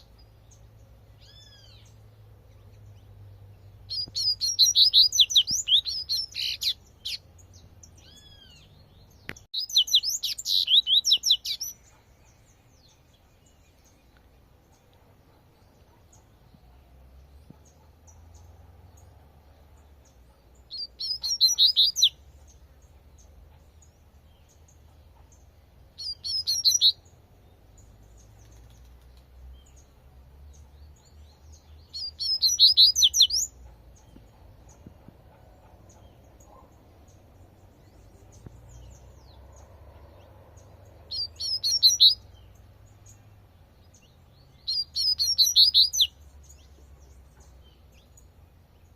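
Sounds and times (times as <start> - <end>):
bird singing high-pitched phrases: 1.2 - 12.0, 20.6 - 22.6, 25.9 - 27.2, 30.6 - 33.6, 41.1 - 43.2, 43.9 - 46.2.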